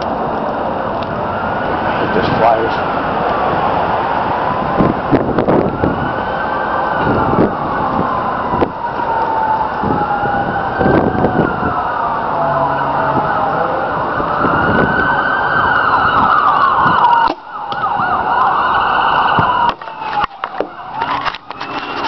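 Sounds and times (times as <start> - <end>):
emergency siren wailing: 0.0 - 22.0
wind buffeting microphone: 0.0 - 22.0.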